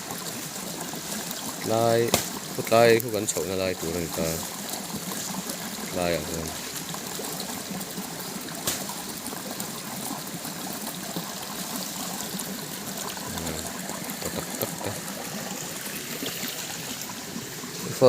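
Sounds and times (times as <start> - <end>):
flowing water: 0.0 - 18.0
faint voice: 13.3 - 13.7.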